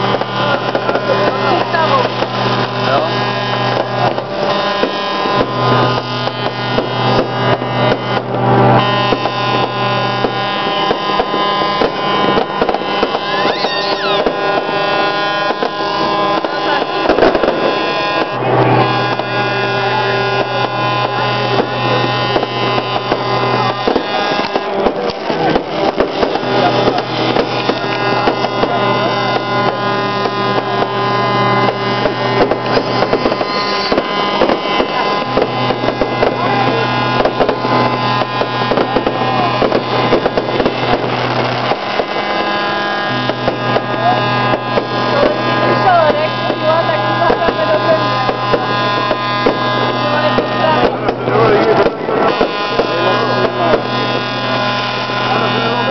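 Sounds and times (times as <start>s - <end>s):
bass line: 0.0s - 55.9s.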